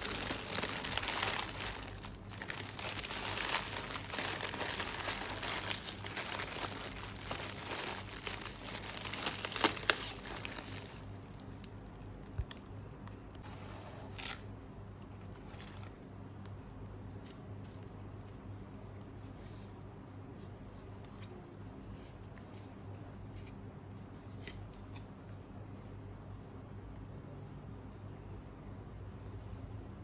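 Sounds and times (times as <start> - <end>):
packaging crinkling and rustling: 0.0 - 12.6.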